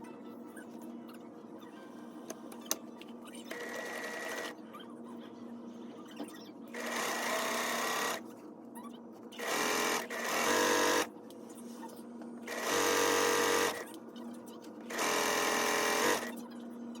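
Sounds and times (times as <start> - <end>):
small electric motor running: 6.8 - 8.2, 9.4 - 11.1, 12.5 - 13.8, 14.9 - 16.3.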